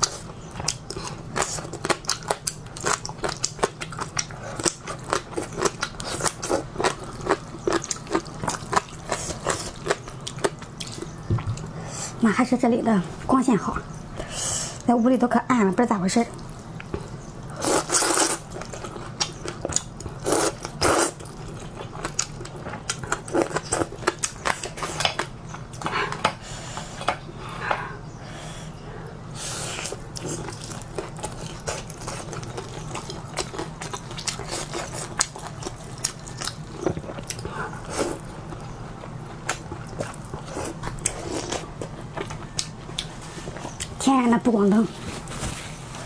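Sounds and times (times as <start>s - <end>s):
chewing: 0.0s - 11.8s, 16.3s - 26.3s, 29.0s - 44.0s.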